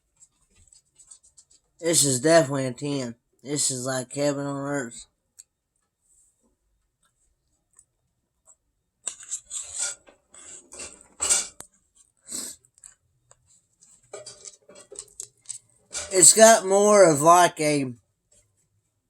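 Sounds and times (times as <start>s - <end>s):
cutlery scraping on dish: 9.2s - 11.6s, 14.1s - 15.1s.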